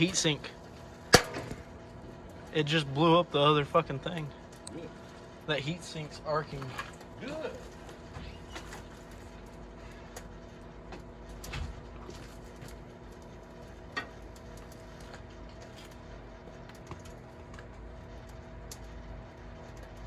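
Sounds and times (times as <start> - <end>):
microwave oven humming: 0.0 - 20.0
sharp pop: 1.1 - 1.6.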